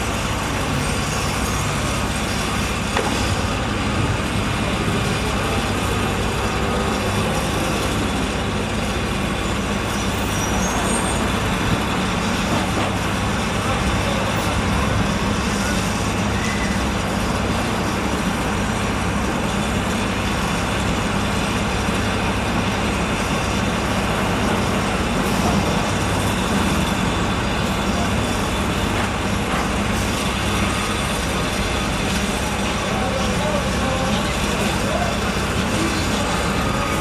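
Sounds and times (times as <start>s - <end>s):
engine rumble: 0.0s - 37.0s.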